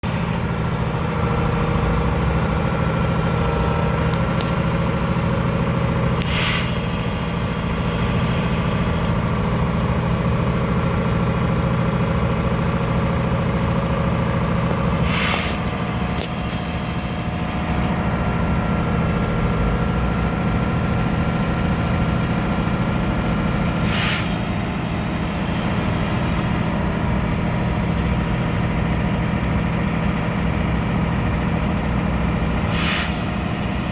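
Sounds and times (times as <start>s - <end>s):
diesel truck engine idling: 0.0s - 33.9s
air brake hisses: 6.1s - 9.2s, 14.9s - 18.0s, 23.6s - 26.8s, 32.5s - 33.9s.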